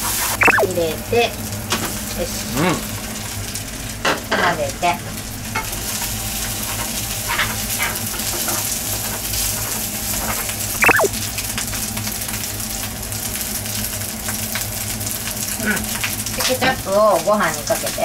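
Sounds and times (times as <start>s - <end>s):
high squeal falling in pitch: 0.4s - 0.7s.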